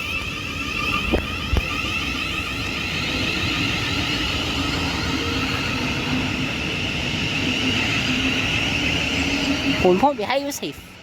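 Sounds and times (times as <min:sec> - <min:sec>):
train rushing through station: 0:00.0 - 0:11.0.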